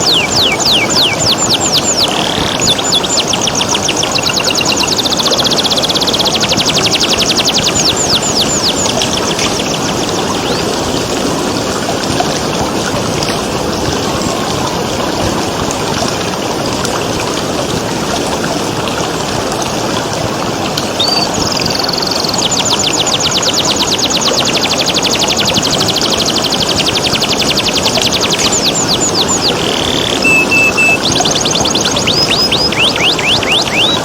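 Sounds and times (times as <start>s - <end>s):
canary trilling: 0.0s - 10.6s, 21.0s - 34.0s
running water: 0.0s - 34.0s.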